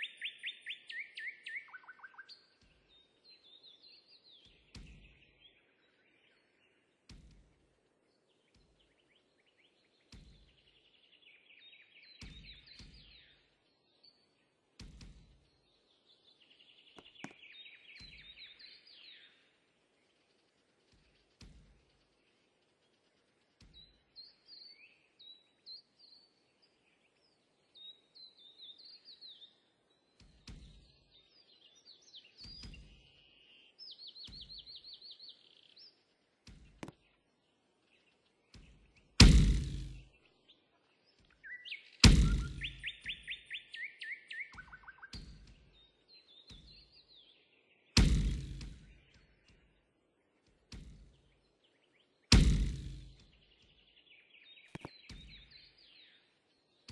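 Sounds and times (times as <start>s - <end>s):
small birds chirping: 0.0s - 56.9s
knocks and thumps: 14.8s - 15.4s, 38.6s - 40.0s, 42.0s - 42.7s, 48.0s - 48.9s, 52.3s - 53.3s.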